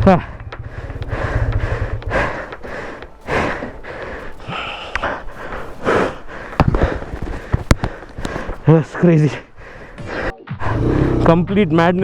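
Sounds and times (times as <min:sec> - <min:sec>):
motorcycle engine running: 0:00.0 - 0:02.1
person breathing hard: 0:00.3 - 0:08.6, 0:09.4 - 0:11.2.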